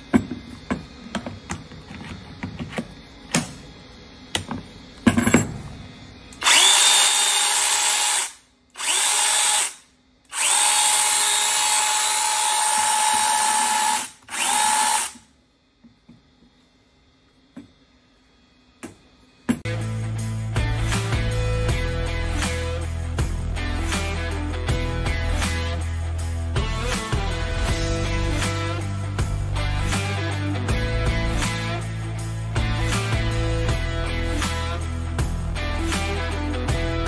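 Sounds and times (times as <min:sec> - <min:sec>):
electric chainsaw motor whine: 0:06.3 - 0:15.2.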